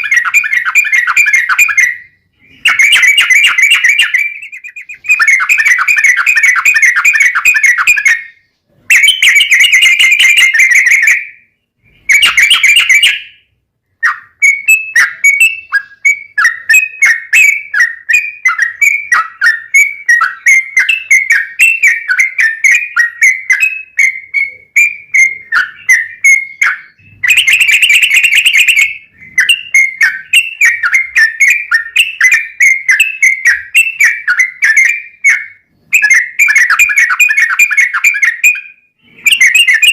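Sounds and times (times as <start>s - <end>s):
bird chattering trills: 0.0s - 8.3s
bird whistled notes: 0.0s - 39.9s.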